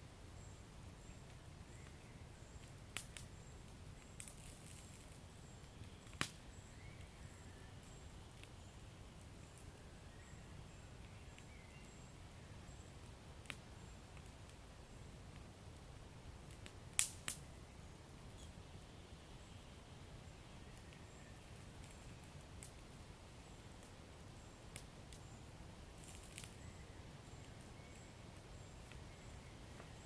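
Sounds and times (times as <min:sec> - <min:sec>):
wood fire crackling: 0:00.2 - 0:30.0
sharp pops and snaps: 0:02.6 - 0:06.4, 0:13.4 - 0:13.6, 0:16.4 - 0:17.5, 0:20.8 - 0:22.9, 0:24.7 - 0:25.3, 0:26.0 - 0:26.6.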